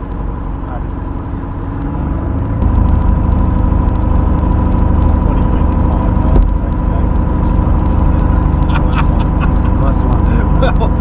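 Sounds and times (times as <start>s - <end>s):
aircraft piston engine running: 0.0s - 11.0s.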